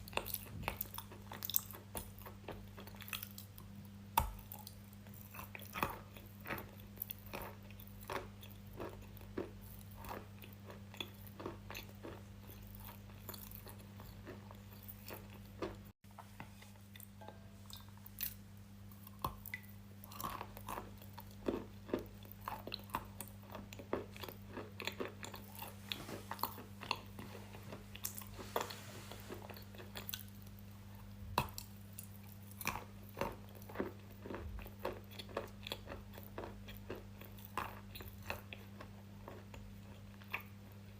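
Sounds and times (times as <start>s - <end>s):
low steady hum: 0.0s - 40.9s
crunchy chewing: 4.4s - 16.0s, 19.0s - 40.9s.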